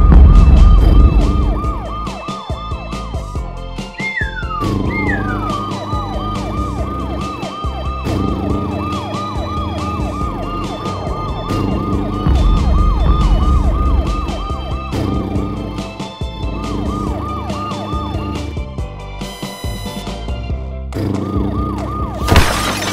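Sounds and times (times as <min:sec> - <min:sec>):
siren-like electronic tone: 0:00.0 - 0:03.1, 0:04.0 - 0:15.7
background music: 0:00.0 - 0:22.9.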